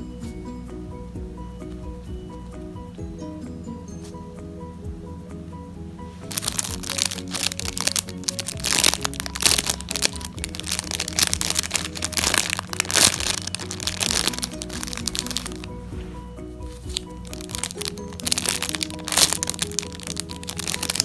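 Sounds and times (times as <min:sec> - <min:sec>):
background music: 0:00.0 - 0:21.0
squishy toys crackling: 0:06.3 - 0:15.8, 0:16.6 - 0:21.0.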